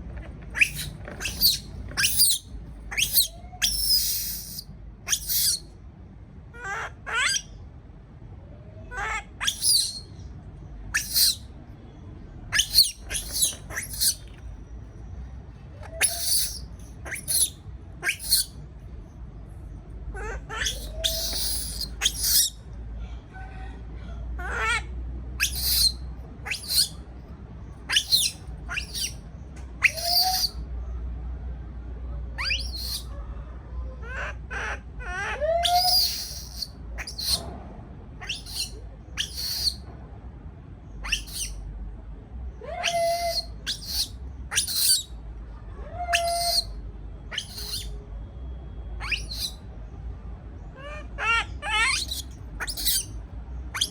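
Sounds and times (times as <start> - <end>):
baby monkey squeaking: 0.5 - 5.7, 9.0 - 10.1, 10.9 - 11.4, 12.5 - 14.4, 15.9 - 18.6, 20.5 - 22.6, 25.4 - 27.0, 27.9 - 29.2, 29.8 - 30.6, 32.4 - 33.1, 35.2 - 37.4, 38.2 - 39.8, 41.0 - 41.6, 42.8 - 45.2, 46.1 - 48.0, 49.0 - 49.7, 51.2 - 53.9.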